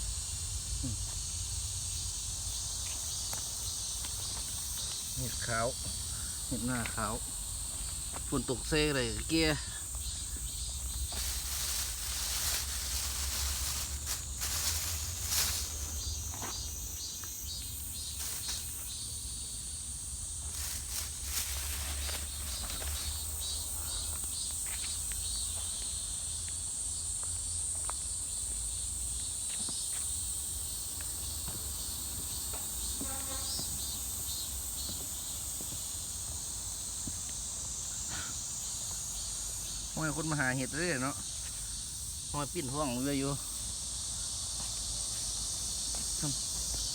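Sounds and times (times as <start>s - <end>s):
crickets trilling: 0.0s - 46.9s
footsteps on forest floor: 2.8s - 19.1s, 20.4s - 26.6s, 29.2s - 38.0s, 44.5s - 46.9s.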